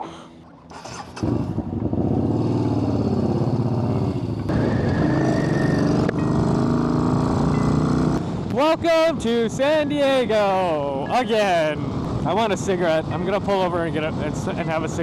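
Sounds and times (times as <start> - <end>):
motorcycle engine pulling away: 0.7 - 8.4.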